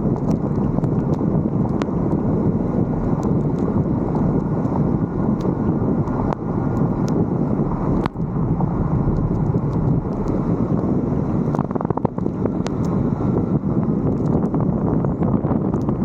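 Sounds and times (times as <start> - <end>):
wind buffeting microphone: 0.0 - 16.0
faint ticks: 0.1 - 2.2, 11.4 - 13.0.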